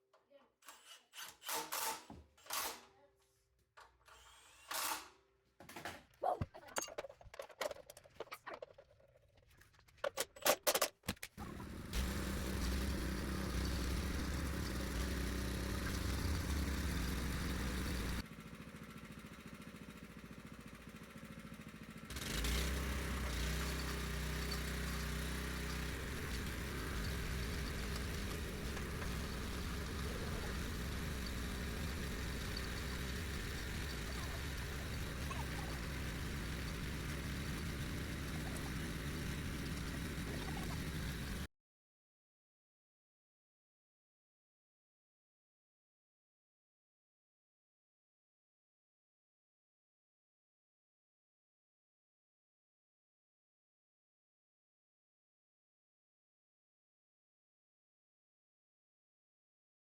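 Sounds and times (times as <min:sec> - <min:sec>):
rototiller engine running: 0:11.4 - 0:41.5.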